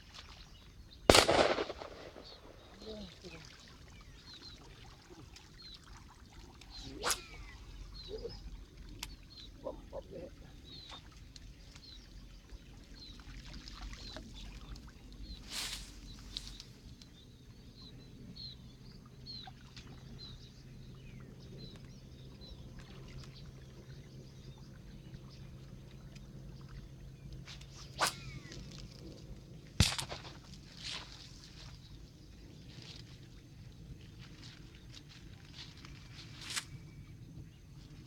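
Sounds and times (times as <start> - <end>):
faint water noise: 0.0 - 17.2, 18.8 - 38.0
splash: 27.8 - 28.5, 29.8 - 31.8.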